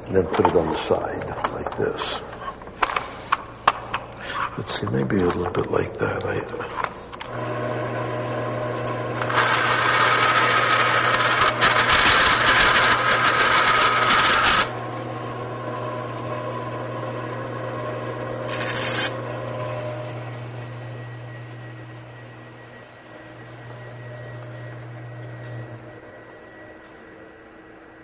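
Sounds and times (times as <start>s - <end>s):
power tool motor hum: 7.3s - 14.8s, 18.4s - 19.9s
power tool cutting wood: 7.4s - 14.7s, 18.5s - 19.2s.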